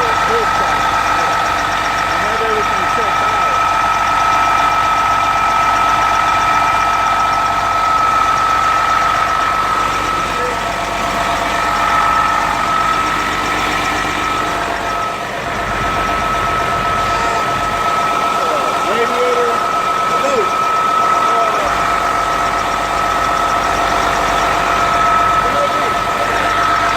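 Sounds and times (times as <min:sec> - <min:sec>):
diesel engine idling: 0:00.0 - 0:26.9
high-pitched tone: 0:06.5 - 0:26.9.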